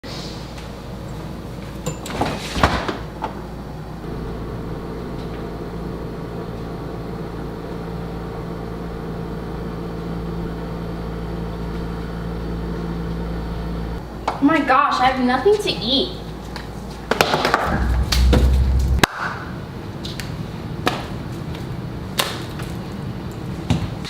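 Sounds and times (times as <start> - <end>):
appliance hum: 3.2 - 14.1.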